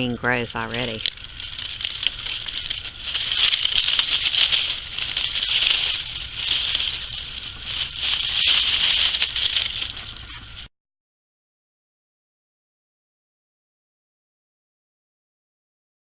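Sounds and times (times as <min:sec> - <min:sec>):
dry stems and leaves rustling: 0:00.0 - 0:10.7.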